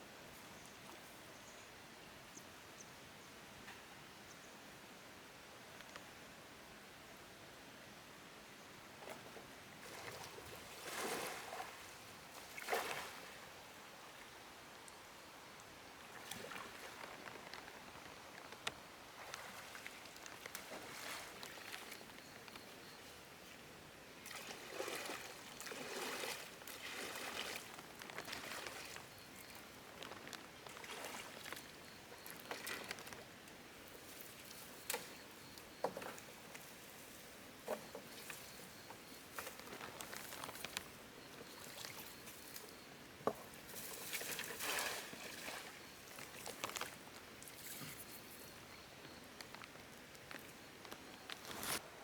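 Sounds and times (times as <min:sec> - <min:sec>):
water sloshing and trickling: 0:09.0 - 0:13.4, 0:16.0 - 0:22.7, 0:24.2 - 0:42.6, 0:43.2 - 0:50.5.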